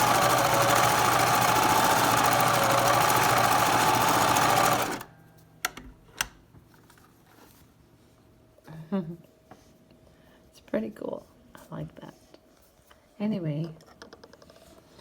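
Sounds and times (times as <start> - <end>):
sewing machine running fast: 0.0 - 5.1.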